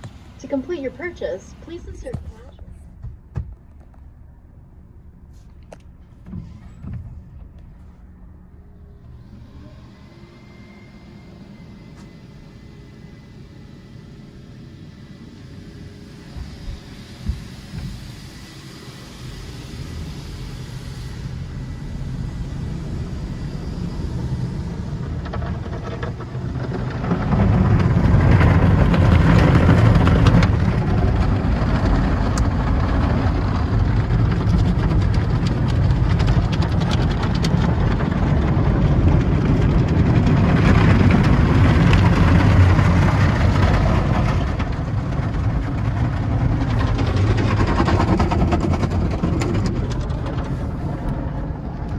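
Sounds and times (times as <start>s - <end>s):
car wash machinery rumble: 0.0s - 51.9s
water and washing noise: 15.7s - 51.9s.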